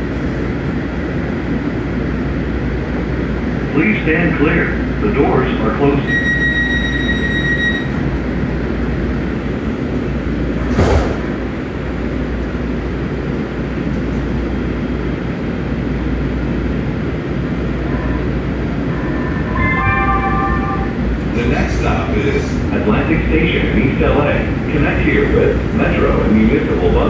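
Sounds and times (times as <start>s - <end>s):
train rumbling: 0.0s - 27.0s
steady higher tones: 17.5s - 27.0s.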